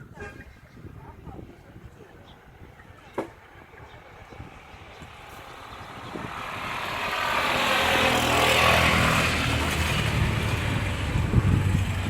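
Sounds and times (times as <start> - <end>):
vehicle engine humming: 2.4 - 12.0.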